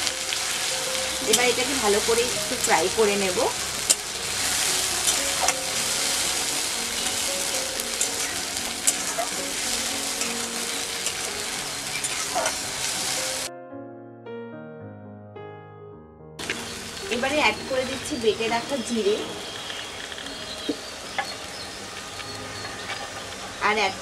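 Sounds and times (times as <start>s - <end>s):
food sizzling in hot oil: 0.0s - 13.5s, 16.4s - 24.0s
soft background music: 0.0s - 13.6s, 16.4s - 24.0s
spatula scraping the pan: 3.8s - 13.2s.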